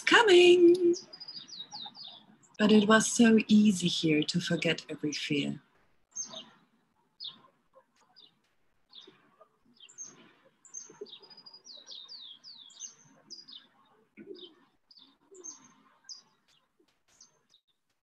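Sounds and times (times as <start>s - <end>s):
faint birds chirping: 0.0s - 18.0s.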